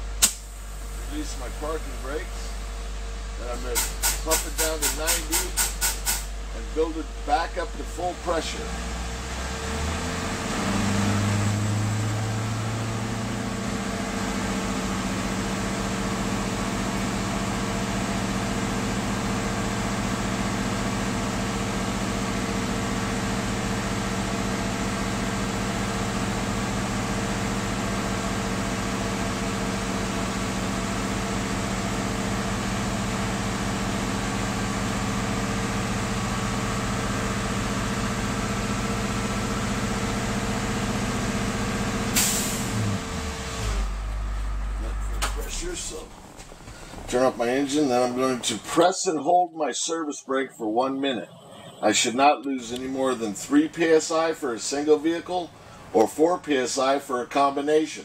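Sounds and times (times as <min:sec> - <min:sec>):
bus engine revving and idling: 0:00.0 - 0:49.2, 0:51.1 - 0:58.0
air hiss: 0:03.7 - 0:06.3.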